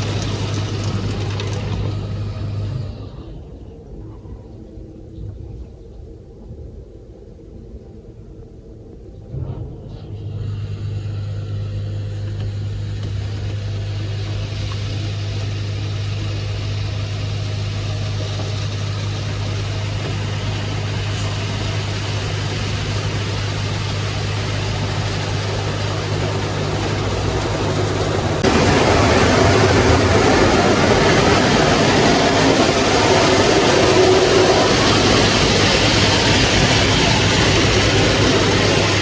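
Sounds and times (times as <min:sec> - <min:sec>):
low motor hum: 0:00.0 - 0:39.0
rushing hiss: 0:09.3 - 0:39.0.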